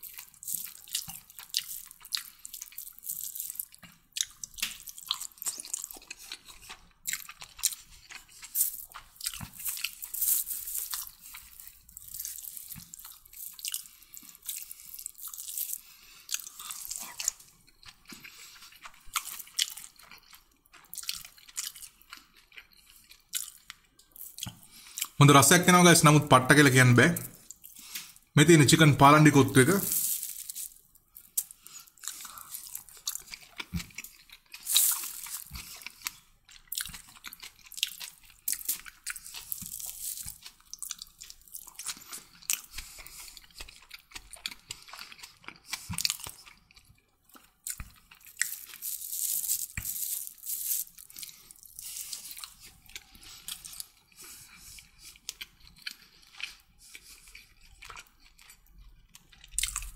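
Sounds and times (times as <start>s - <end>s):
person chewing and crunching food: 0.0s - 59.9s
mouth clicks and smacks: 24.2s - 25.9s, 47.3s - 48.7s.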